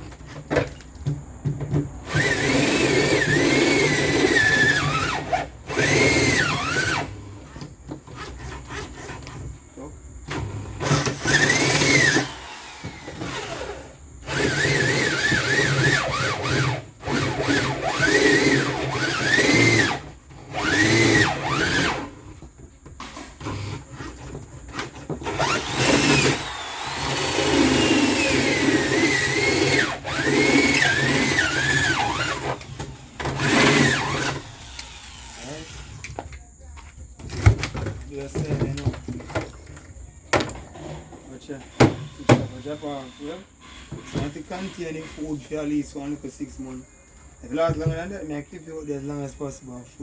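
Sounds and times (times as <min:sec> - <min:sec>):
power drill motor whine: 0:02.0 - 0:07.4, 0:10.2 - 0:22.4, 0:23.1 - 0:36.2, 0:41.3 - 0:46.0.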